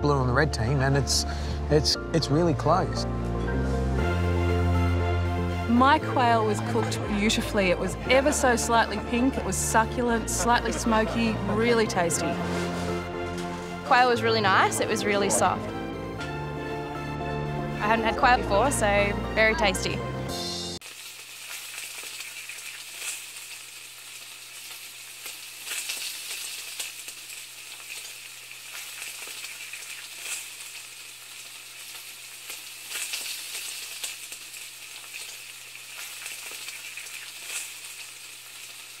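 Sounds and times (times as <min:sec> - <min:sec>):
sizzling crackling hiss: 0:03.5 - 0:16.2, 0:20.7 - 0:39.0.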